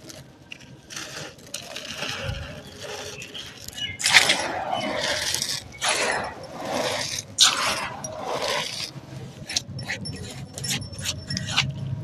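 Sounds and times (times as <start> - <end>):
sand-cement chunks crumbling: 0.0 - 9.5.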